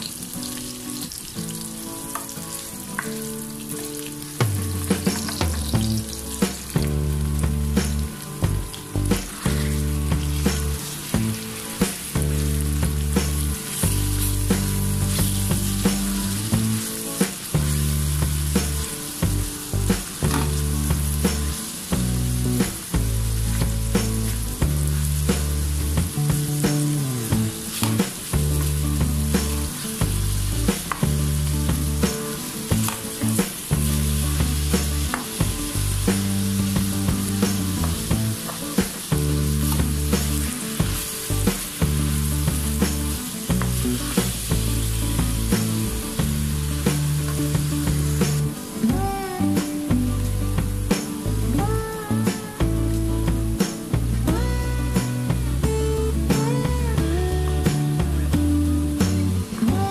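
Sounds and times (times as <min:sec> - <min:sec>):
spatula scraping and tapping pan: 0:00.0 - 0:21.8, 0:25.3 - 0:48.6
meat sizzling in a wok: 0:00.0 - 0:59.9.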